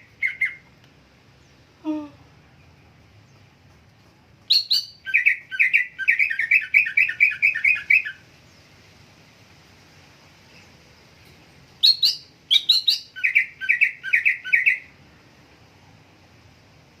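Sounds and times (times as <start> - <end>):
bird chirping: 0.0 - 0.7, 4.4 - 8.8, 10.4 - 15.0.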